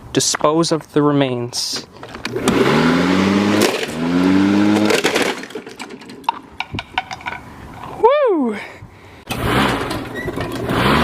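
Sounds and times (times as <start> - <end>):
lawnmower revving: 2.3 - 6.2, 9.3 - 11.0
plastic toys cracking and crunching: 4.8 - 7.2.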